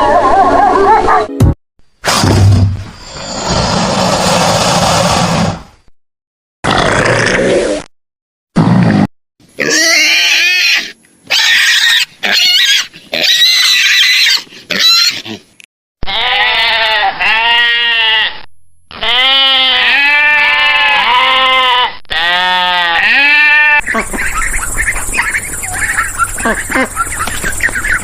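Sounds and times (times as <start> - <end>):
pig squealing: 9.6 - 28.0
goat or sheep bleating: 16.0 - 23.8.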